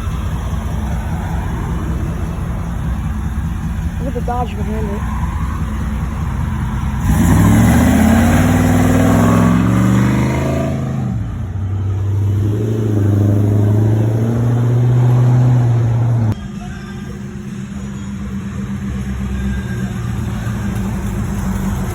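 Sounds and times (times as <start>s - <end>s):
car engine accelerating hard: 0.0s - 16.4s.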